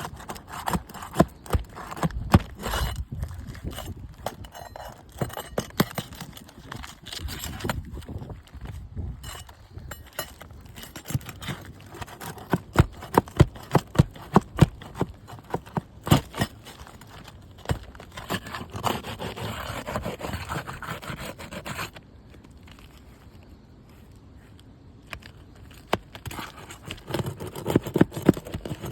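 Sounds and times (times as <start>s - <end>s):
tool knocking under shingles: 0.0s - 7.9s, 9.2s - 19.4s
tool scraping shingle: 0.0s - 23.4s, 25.1s - 28.9s.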